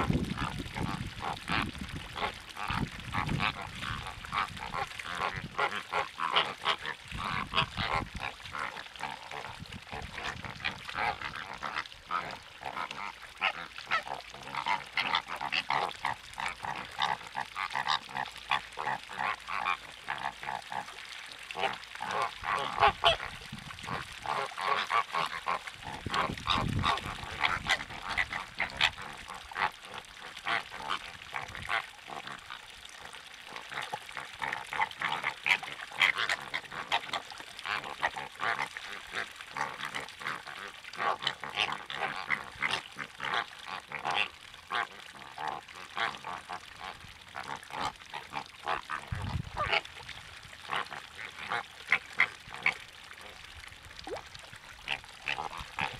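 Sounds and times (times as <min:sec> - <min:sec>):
water birds calling: 0:00.0 - 0:55.9.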